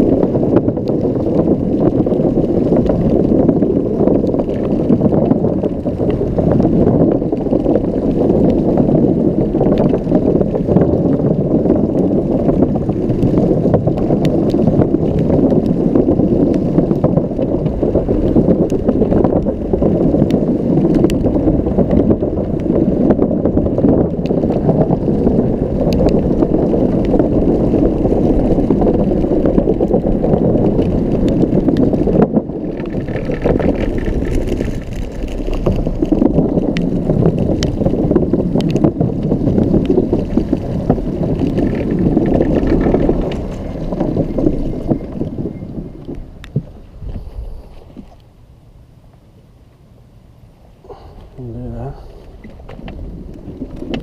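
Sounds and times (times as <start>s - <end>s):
scooter wheels rattling over paving: 0.0s - 54.0s
wind on microphone: 0.0s - 54.0s.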